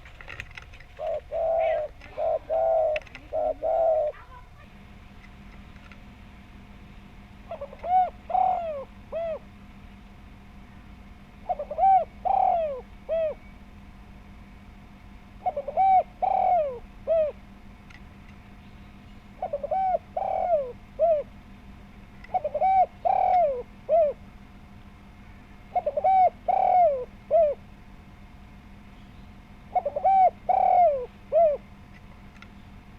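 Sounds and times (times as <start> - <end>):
dove cooing: 0.0 - 4.8, 7.4 - 9.6, 11.3 - 13.6, 15.3 - 17.6, 19.2 - 21.5, 22.1 - 24.4, 25.3 - 27.8, 29.6 - 31.8
faint steady hum: 0.0 - 32.9.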